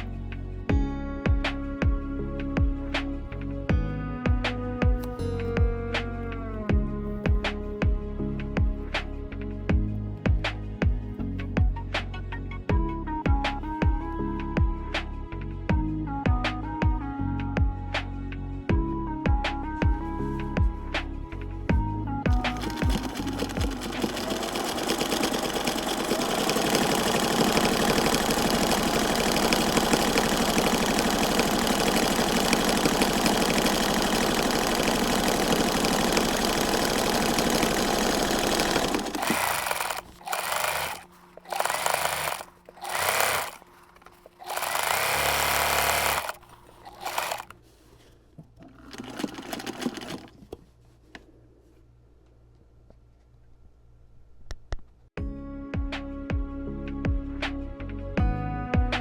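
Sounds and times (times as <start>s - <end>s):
small motor chattering: 22.3s - 47.6s.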